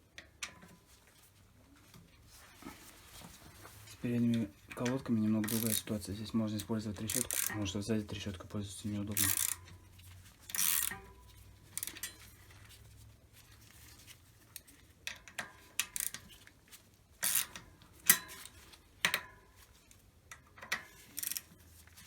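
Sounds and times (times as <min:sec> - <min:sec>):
metal tools clinking: 0:04.4 - 0:06.0
ratchet wrench clicking: 0:04.7 - 0:07.7, 0:09.1 - 0:09.8, 0:10.5 - 0:12.2, 0:15.1 - 0:16.2, 0:17.2 - 0:18.3, 0:20.6 - 0:21.6.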